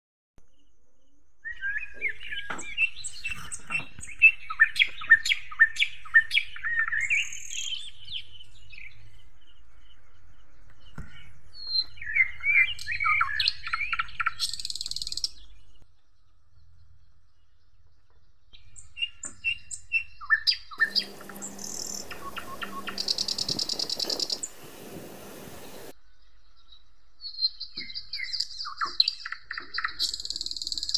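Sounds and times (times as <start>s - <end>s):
songbirds chirping: 0.4s - 30.9s
high buzzing: 20.8s - 25.9s
steady hum: 20.8s - 25.9s.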